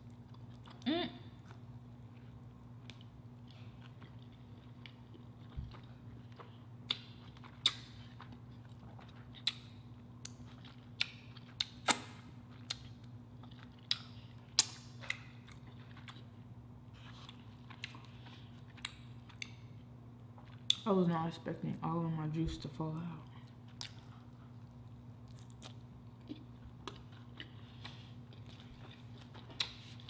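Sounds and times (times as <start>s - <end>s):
steady low hum: 0.0s - 30.0s
wet lip smacks and clicks: 11.0s - 12.8s.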